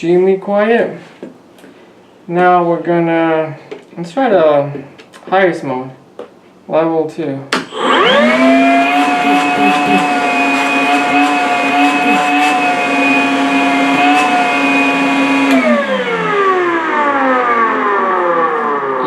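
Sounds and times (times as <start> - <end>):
vacuum cleaner motor whining: 7.7 - 19.0.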